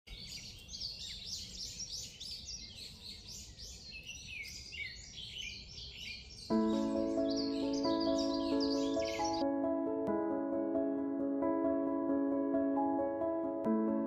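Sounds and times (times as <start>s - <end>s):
songbirds chorus: 0.1s - 9.4s.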